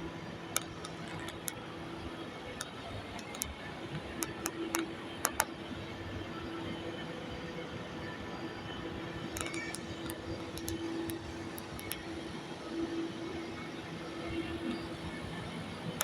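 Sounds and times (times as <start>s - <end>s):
faint clicks: 2.6s - 5.5s, 9.4s - 12.0s.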